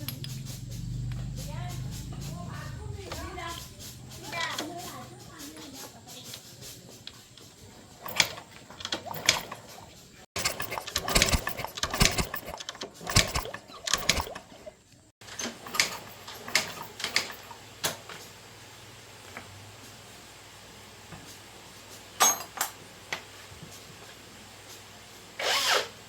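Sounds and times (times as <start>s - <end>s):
handling clicks and knocks: 8.0s - 9.8s, 10.4s - 14.4s.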